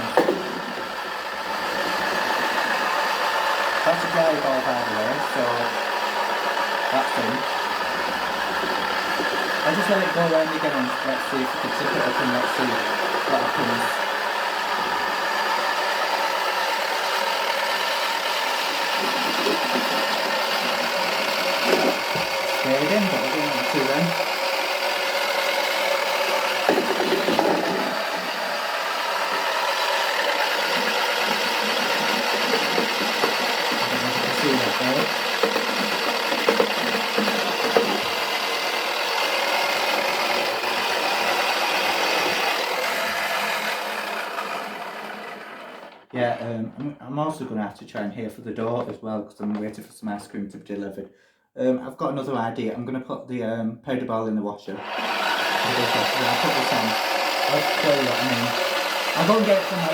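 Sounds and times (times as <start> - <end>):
small electric motor humming: 0.0 - 46.1, 54.8 - 59.9.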